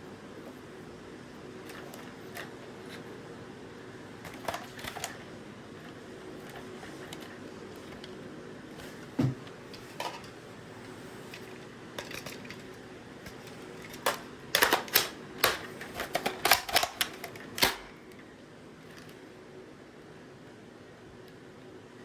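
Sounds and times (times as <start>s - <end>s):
sharp plastic and metal clicks: 13.3s - 18.1s.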